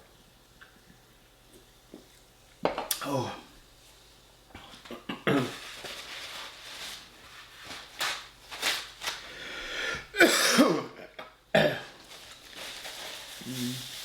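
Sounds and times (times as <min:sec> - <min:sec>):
man groaning sighs: 0:03.0 - 0:03.5.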